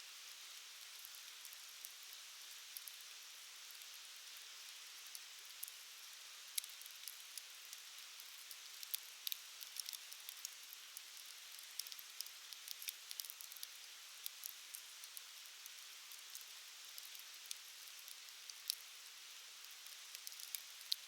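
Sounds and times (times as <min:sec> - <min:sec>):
campfire crackling and popping: 0:08.8 - 0:13.7, 0:20.1 - 0:21.0.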